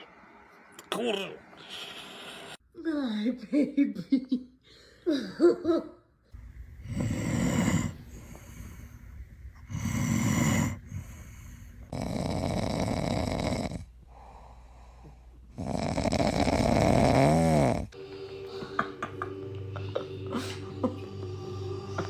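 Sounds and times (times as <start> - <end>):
dog snoring: 6.8 - 8.9, 9.6 - 14.9, 15.5 - 18.0.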